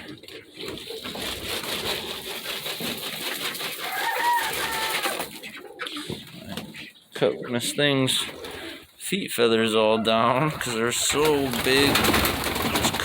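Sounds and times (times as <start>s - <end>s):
birds flapping wings: 0.6s - 5.5s, 10.6s - 13.0s.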